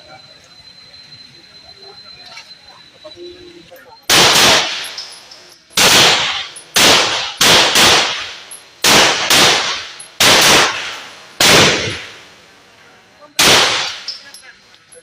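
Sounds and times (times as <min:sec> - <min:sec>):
gunshots: 0:04.1 - 0:12.3, 0:13.4 - 0:14.2.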